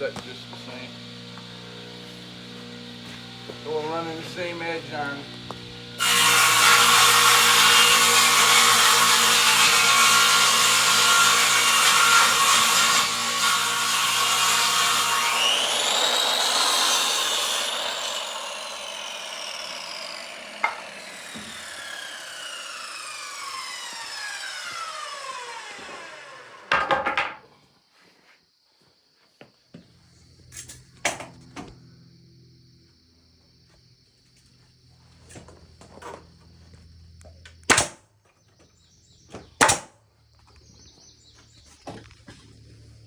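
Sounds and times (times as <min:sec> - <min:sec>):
saw blade whine winding down: 0:00.0 - 0:26.8
table saw ripping wood: 0:00.0 - 0:27.4, 0:37.7 - 0:38.0, 0:39.6 - 0:39.9.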